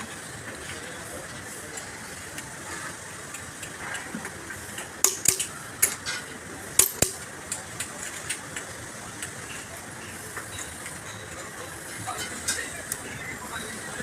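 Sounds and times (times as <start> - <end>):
workshop background noise: 0.0 - 14.0
hand tools clicking on metal: 5.0 - 6.2, 6.8 - 8.4.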